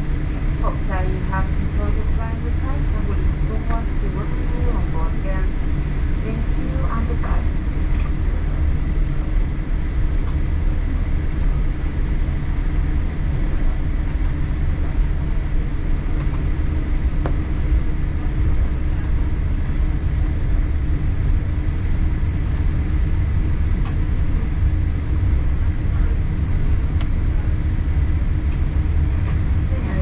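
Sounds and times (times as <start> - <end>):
aircraft cabin rumble: 0.0 - 30.0.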